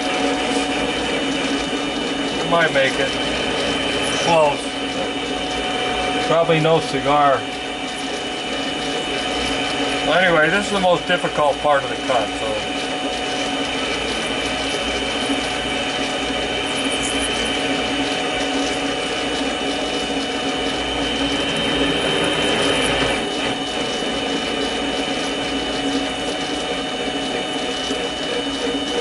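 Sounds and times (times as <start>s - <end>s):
lathe motor and gear whine: 0.0s - 29.0s.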